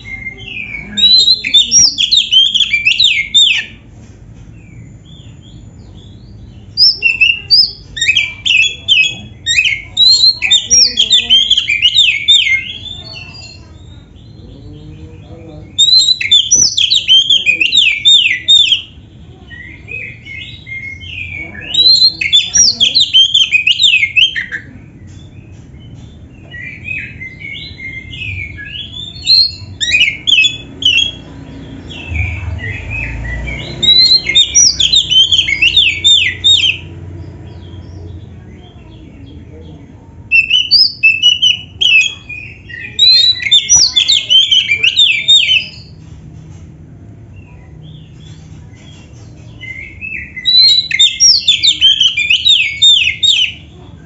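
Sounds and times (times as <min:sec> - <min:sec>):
bird singing rapid notes: 0:00.0 - 0:03.8, 0:04.6 - 0:15.0, 0:15.6 - 0:39.5, 0:40.1 - 0:46.0, 0:47.4 - 0:53.7.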